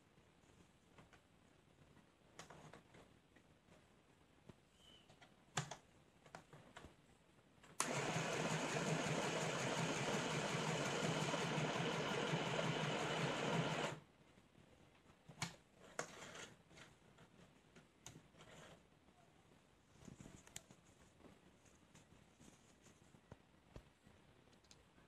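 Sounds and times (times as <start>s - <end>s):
sewing machine stitching: 7.8s - 14.0s.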